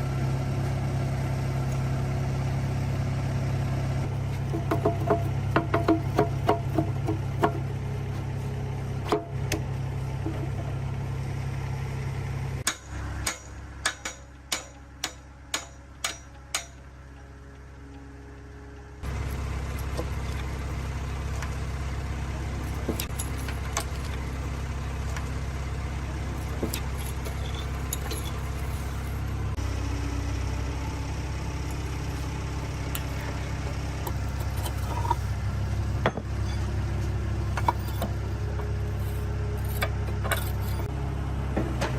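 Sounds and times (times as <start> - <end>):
low machine hum: 0.0 - 41.9
metallic clinks: 26.4 - 29.3.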